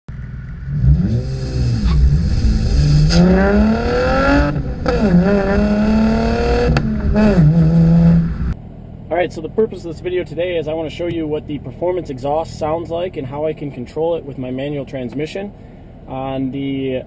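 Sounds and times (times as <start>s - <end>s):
car engine revving: 0.1s - 8.6s.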